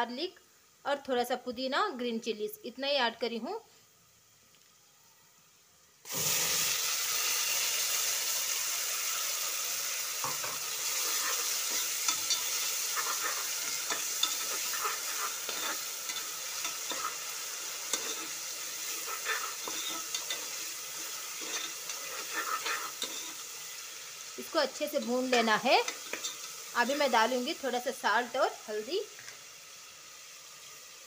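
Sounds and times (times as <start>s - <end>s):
paste sizzling in hot oil: 6.0s - 31.0s
metal ladle scraping cooker: 10.3s - 23.4s, 25.9s - 26.5s.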